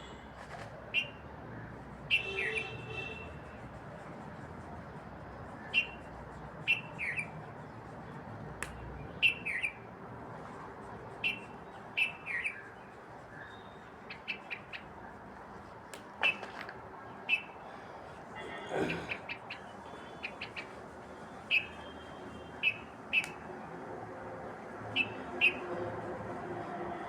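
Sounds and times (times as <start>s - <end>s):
birds chirping: 5.4s - 23.6s, 24.5s - 25.8s
sharp clicks: 8.6s - 8.9s, 23.2s - 23.4s.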